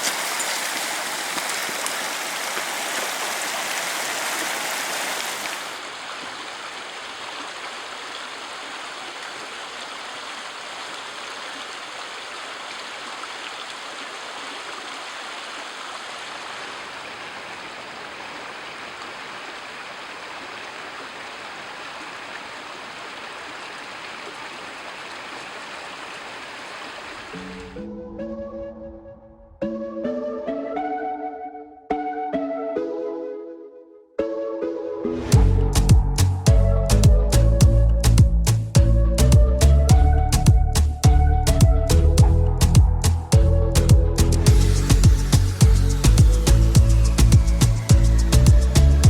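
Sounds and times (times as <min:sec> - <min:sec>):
rushing mountain stream: 0:00.0 - 0:27.7, 0:44.4 - 0:49.0.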